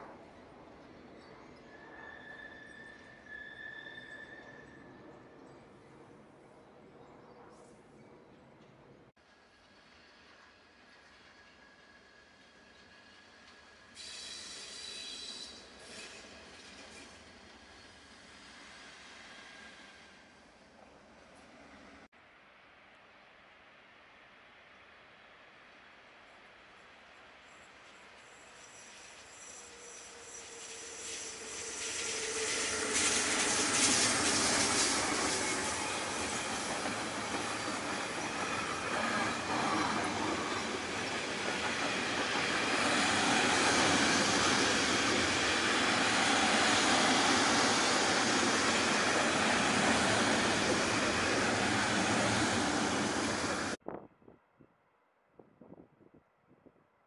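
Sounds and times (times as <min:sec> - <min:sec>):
train wheels rolling on rails: 0:07.6 - 0:22.1, 0:27.6 - 0:53.8
electric locomotives passing: 0:27.4 - 0:53.8.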